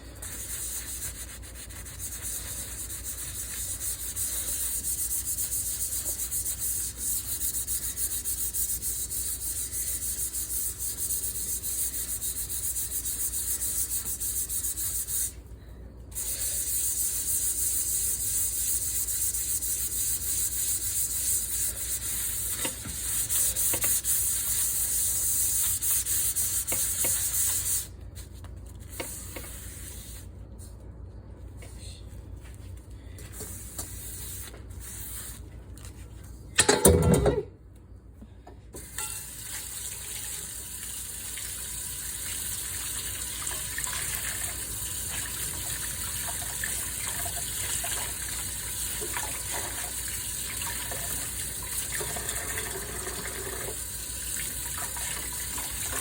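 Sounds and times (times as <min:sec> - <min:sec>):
pan being scrubbed: 0:00.2 - 0:15.4, 0:16.2 - 0:27.9.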